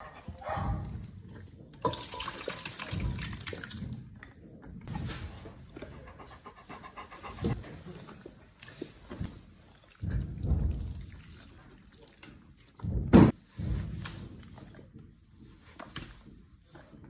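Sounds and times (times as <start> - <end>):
dog eating with wet smacking: 0.2 - 5.0.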